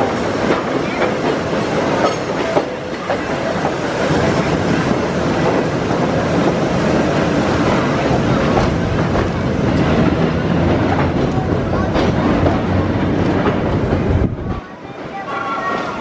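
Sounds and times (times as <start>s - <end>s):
steel wheels rumbling on rails: 0.0s - 16.0s.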